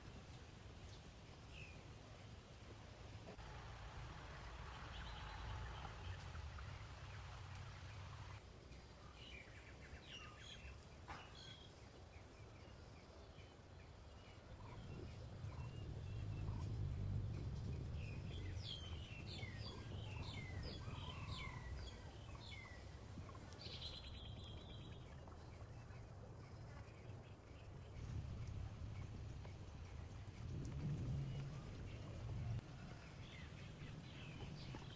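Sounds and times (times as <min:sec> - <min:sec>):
birds chirping: 0:04.3 - 0:30.3
low rumble: 0:14.6 - 0:23.4, 0:27.7 - 0:34.9.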